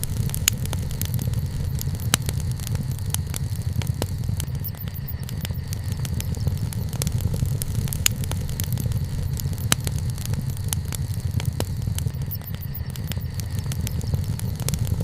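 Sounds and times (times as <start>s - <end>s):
campfire crackles and pops: 0.0s - 15.0s
low steady fire rumble: 0.0s - 15.0s.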